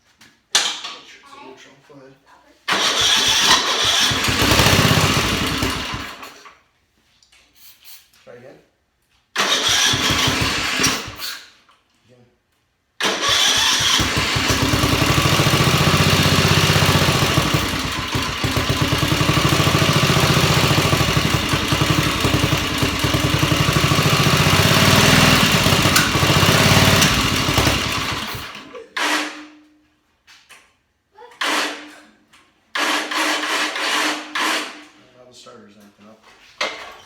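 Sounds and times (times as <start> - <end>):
engine cranking on electric starter: 2.7 - 6.5, 9.4 - 11.6, 13.0 - 29.4, 31.4 - 32.0, 32.8 - 35.0.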